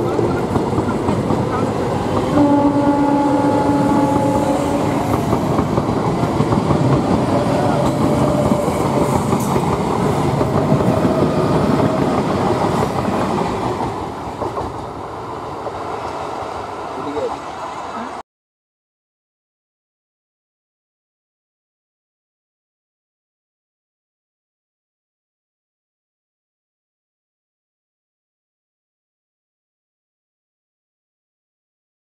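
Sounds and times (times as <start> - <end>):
train running past: 0.0 - 18.2
two-tone train horn: 2.3 - 5.1.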